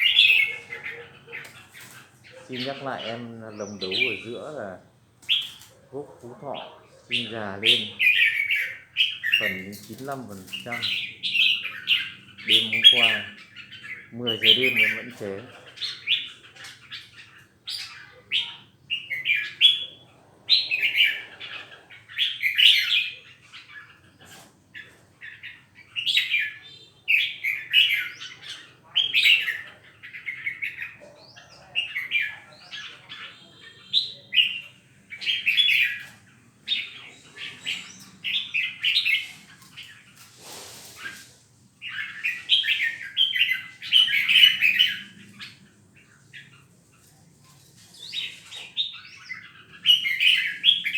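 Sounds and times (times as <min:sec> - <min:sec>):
songbird singing: 0:00.0 - 0:50.9
brief rustle: 0:39.6 - 0:41.4.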